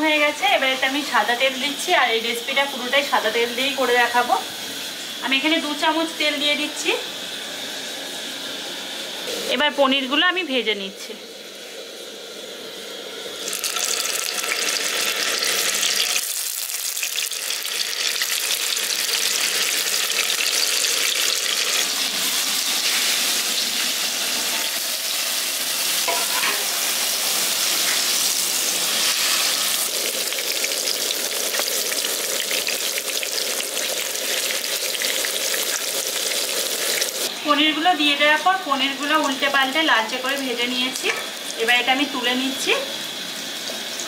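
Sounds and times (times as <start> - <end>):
cheese sizzling in hot oil: 11.2 - 44.0.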